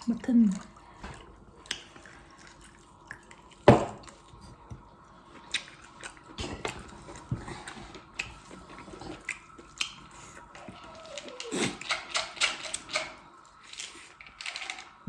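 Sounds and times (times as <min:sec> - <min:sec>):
chewing with wet mouth clicks: 0:00.4 - 0:13.6.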